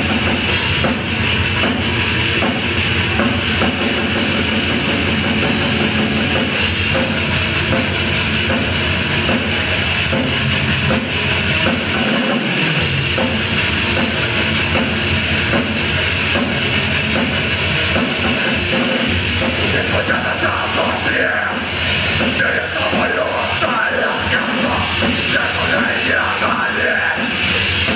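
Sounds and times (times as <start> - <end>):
drum kit beat: 0.0 - 27.9
rock band playing: 0.0 - 27.9.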